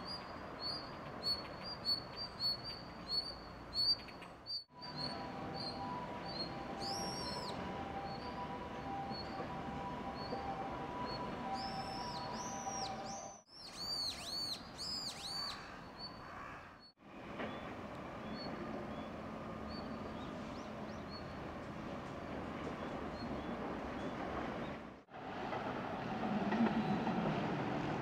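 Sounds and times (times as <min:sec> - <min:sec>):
bird chirping: 0:00.0 - 0:09.4, 0:10.1 - 0:21.4
distant city traffic hum: 0:00.0 - 0:28.0.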